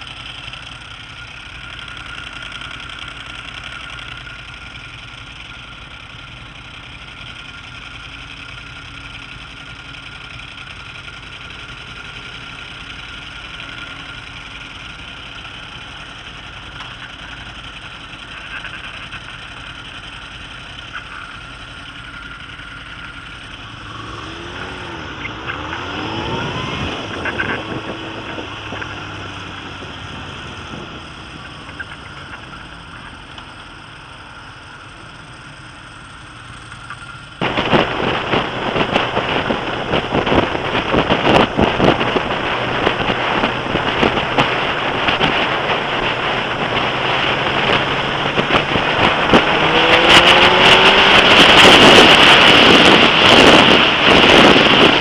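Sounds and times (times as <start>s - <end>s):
motorcycle engine revving: 0.0s - 55.0s
wind buffeting microphone: 37.4s - 55.0s.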